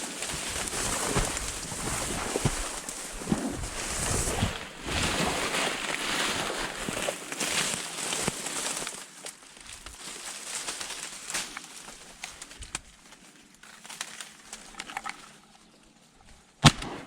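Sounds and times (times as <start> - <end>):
loud shotgun shot: 16.6 - 17.0.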